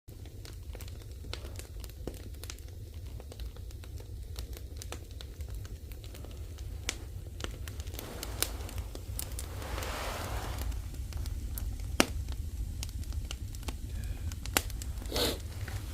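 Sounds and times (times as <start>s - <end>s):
firewood crackling and popping: 0.1s - 15.9s
rushing hiss: 7.6s - 11.4s, 14.8s - 15.9s.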